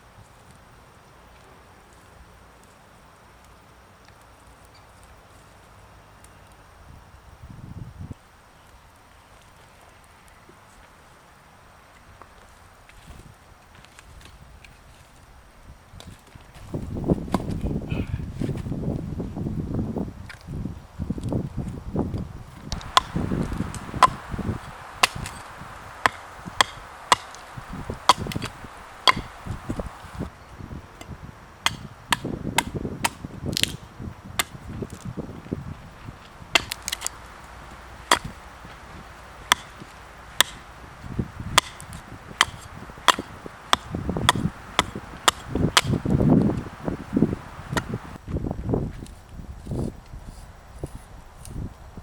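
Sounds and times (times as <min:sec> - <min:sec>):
blade chopping wood: 0:22.7 - 0:30.2, 0:31.6 - 0:33.8, 0:34.4 - 0:35.0, 0:36.6 - 0:37.2, 0:38.0 - 0:38.4, 0:39.4 - 0:40.7, 0:41.5 - 0:46.1.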